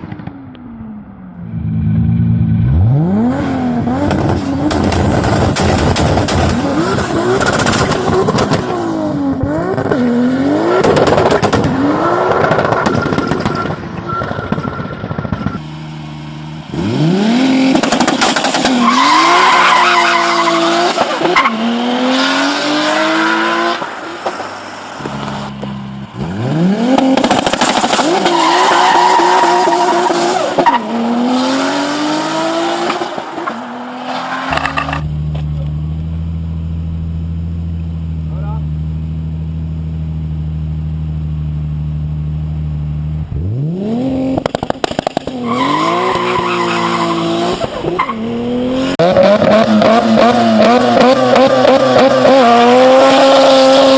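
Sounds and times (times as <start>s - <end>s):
car engine accelerating through gears: 41.4s - 53.9s.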